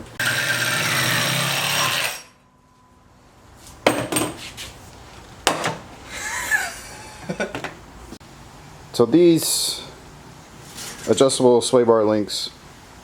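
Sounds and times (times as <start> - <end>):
power cutting tool cutting metal: 0.2 - 2.4.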